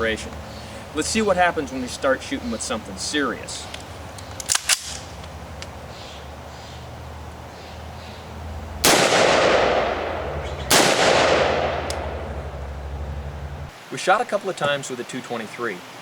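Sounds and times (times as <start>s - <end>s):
rifle shots with echo: 8.8s - 12.6s.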